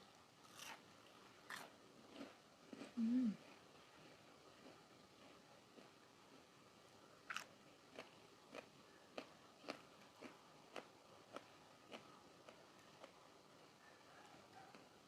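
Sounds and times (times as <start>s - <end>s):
person chewing crunchy food: 0.4s - 3.0s, 4.6s - 6.5s, 7.3s - 13.2s
person biting crisp food: 0.5s - 0.8s, 1.5s - 1.7s.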